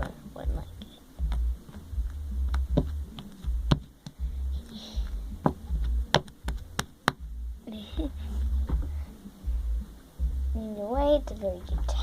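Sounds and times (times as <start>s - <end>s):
low thumping handling noise: 0.0s - 12.0s.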